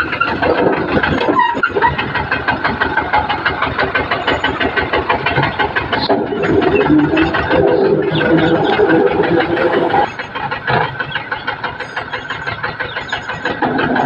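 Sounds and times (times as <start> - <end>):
tractor engine idling: 0.0 - 14.0.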